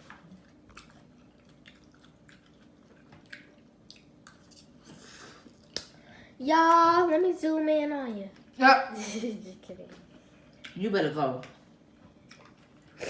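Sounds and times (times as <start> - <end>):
person chewing noodles: 0.2 - 5.8, 12.2 - 13.0.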